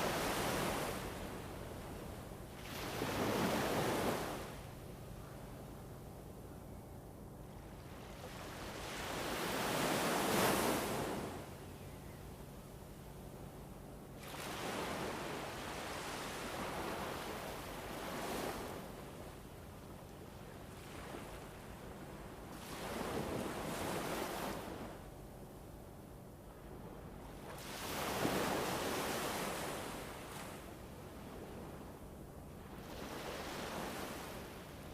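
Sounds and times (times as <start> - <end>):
rushing wind and water noise: 0.0 - 4.8, 26.6 - 34.9
faint low hum: 4.4 - 8.9.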